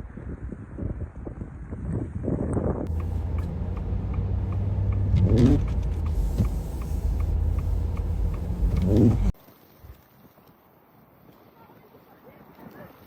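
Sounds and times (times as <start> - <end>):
faint regular ticking: 2.9 - 9.4
vehicle engine rumble: 2.9 - 9.4.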